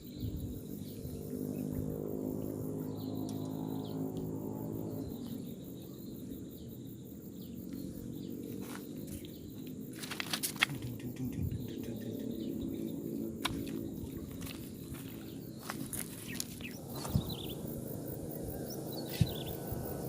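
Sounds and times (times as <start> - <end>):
birds chirping: 0.0 - 20.0
insects chirping: 0.0 - 20.0
steady low rumble: 10.6 - 20.0.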